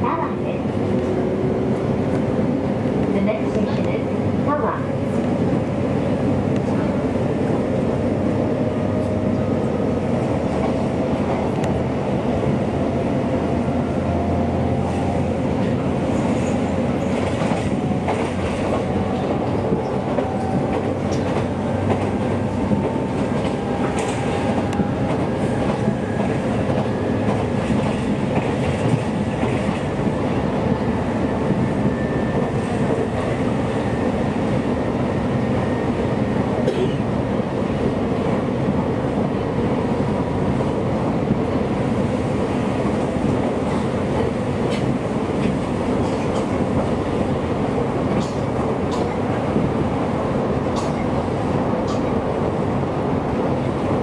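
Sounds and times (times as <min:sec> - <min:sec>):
wheels rumbling on rails: 0:00.0 - 0:54.0.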